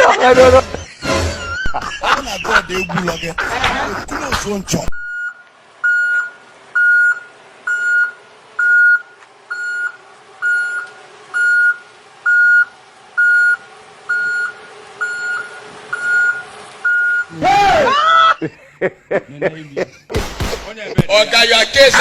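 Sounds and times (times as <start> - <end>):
electronic beeper beeping: 5.0 - 17.3.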